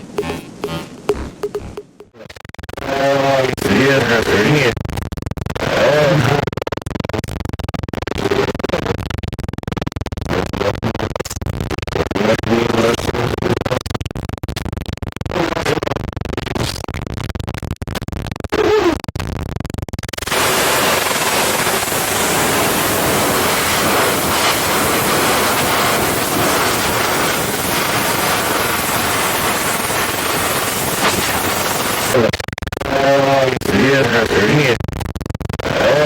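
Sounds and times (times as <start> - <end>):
tv static hiss: 0.0 - 2.1, 20.2 - 33.0
muffled tonal blips: 0.0 - 2.2, 20.2 - 32.2
choppy crackling noise: 0.0 - 36.0.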